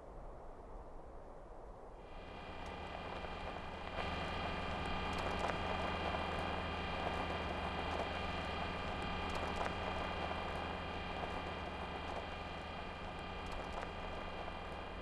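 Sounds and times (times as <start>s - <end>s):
helicopter rotors whirring: 2.1s - 15.0s.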